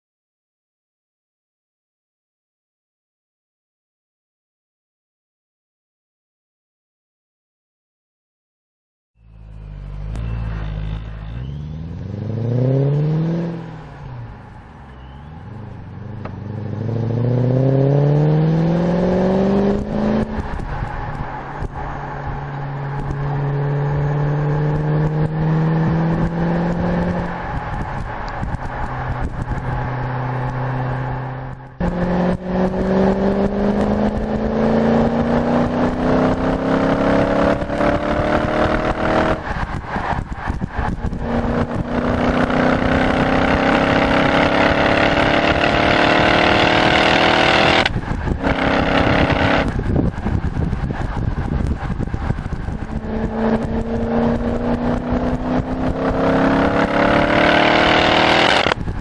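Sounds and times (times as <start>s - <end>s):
car engine accelerating through gears: 9.2s - 59.0s
wind rush: 12.1s - 59.0s.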